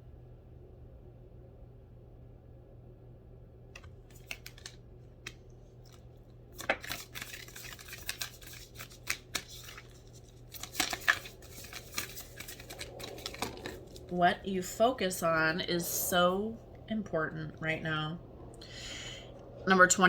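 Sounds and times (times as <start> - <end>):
cards shuffling and snapping: 3.8 - 14.1.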